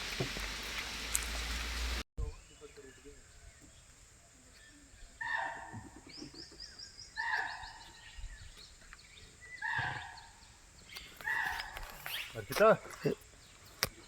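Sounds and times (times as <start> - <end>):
bird calling loudly: 5.1 - 12.6
bird rattling call: 9.6 - 12.6.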